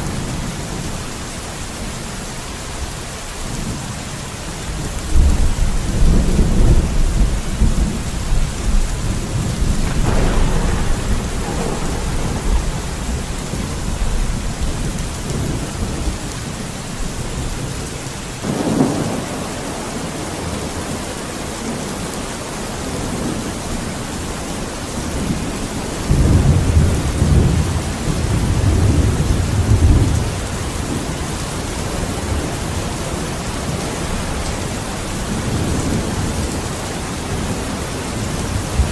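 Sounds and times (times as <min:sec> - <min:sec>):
rain hissing: 0:00.0 - 0:38.9
thunder rumbling: 0:05.1 - 0:20.9, 0:25.0 - 0:38.9
thunder cracks: 0:08.6 - 0:16.1.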